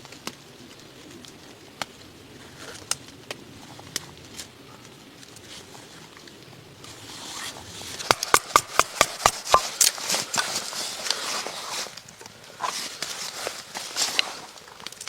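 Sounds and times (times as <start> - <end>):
rustling: 0.0 - 15.0
sharp knocks: 8.0 - 9.8.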